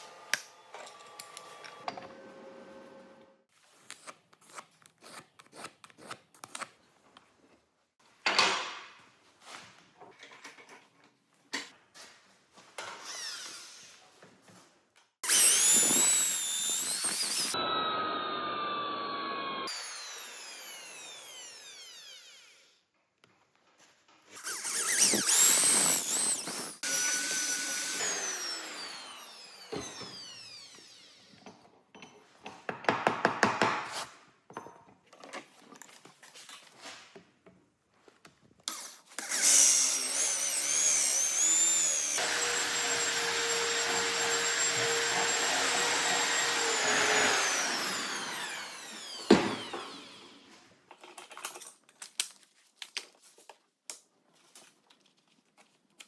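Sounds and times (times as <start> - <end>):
power tool motor running: 15.2 - 22.7, 24.4 - 31.4, 39.2 - 50.5.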